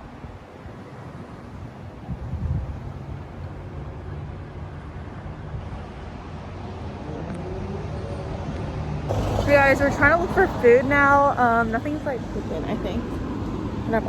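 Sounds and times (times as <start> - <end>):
motor vehicle engine droning: 9.1 - 14.0.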